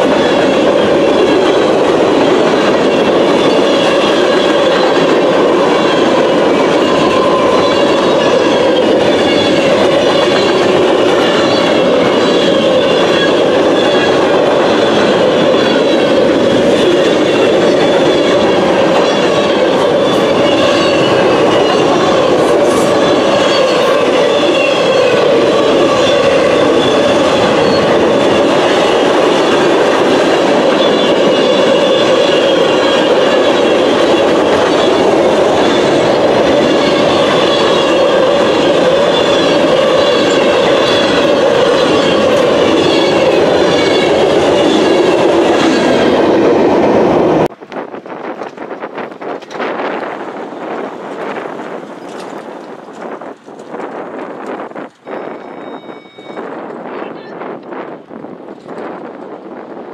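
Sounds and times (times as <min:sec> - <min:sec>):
steel train wheels on rails: 0:00.0 - 0:59.9
faint wheel squeal: 0:55.0 - 0:56.6.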